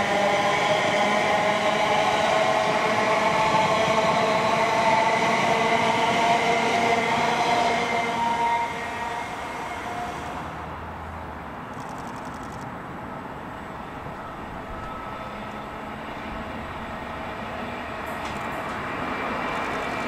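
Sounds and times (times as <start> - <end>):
electric train whine: 0.0 - 20.0
wheels rumbling on rails: 8.5 - 20.0.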